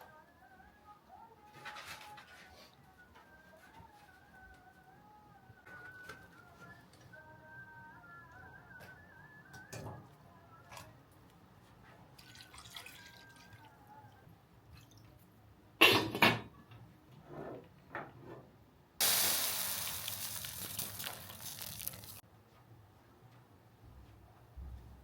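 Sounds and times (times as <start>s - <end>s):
water running: 19.0s - 22.2s.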